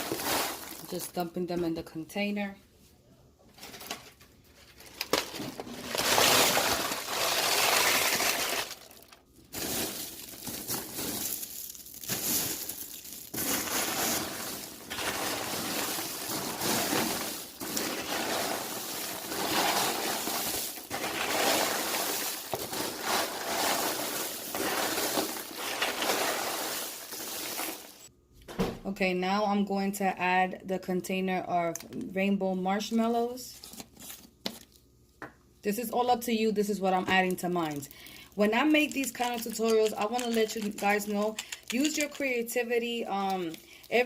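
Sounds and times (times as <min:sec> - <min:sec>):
popcorn pouring into container: 0:00.0 - 0:00.9, 0:05.7 - 0:28.1.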